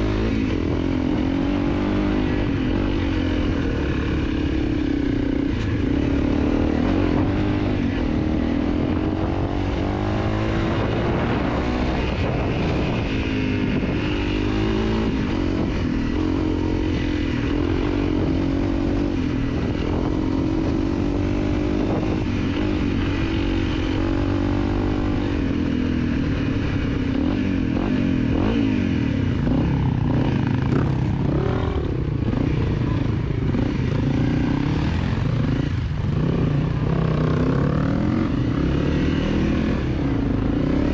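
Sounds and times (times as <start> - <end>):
dirt bike engine revving: 26.4 - 40.9.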